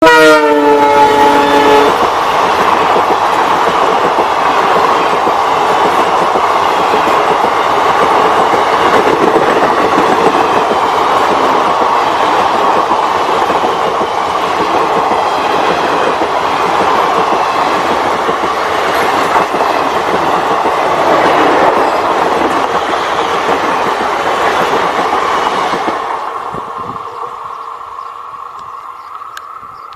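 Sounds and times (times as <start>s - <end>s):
locomotive horn: 0.0s - 2.0s
train wheels clattering on rails: 1.4s - 27.7s.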